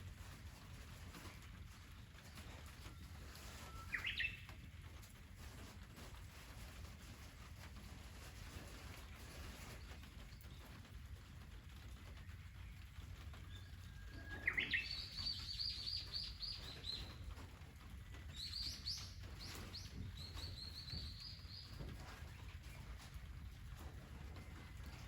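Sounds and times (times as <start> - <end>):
songbird singing with trills: 3.7 - 4.5, 13.5 - 17.2, 18.3 - 21.8.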